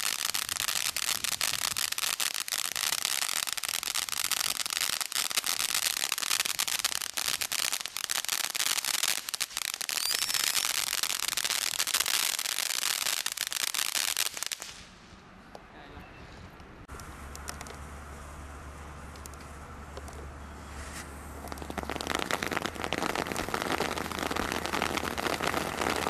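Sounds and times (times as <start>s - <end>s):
firework hissing and crackling: 0.0s - 15.0s, 20.6s - 26.0s.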